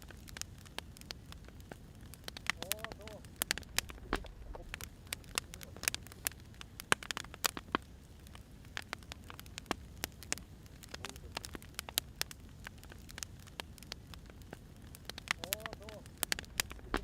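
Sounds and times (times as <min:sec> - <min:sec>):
firewood crackling and popping: 0:00.0 - 0:17.0
soft low rumble: 0:02.5 - 0:06.6, 0:16.2 - 0:17.0.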